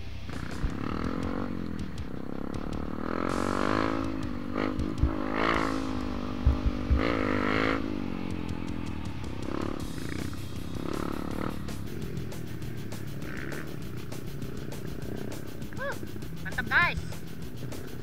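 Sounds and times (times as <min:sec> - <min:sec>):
motorcycle engine revving: 0:00.0 - 0:18.0
short low thumps: 0:03.9 - 0:07.4.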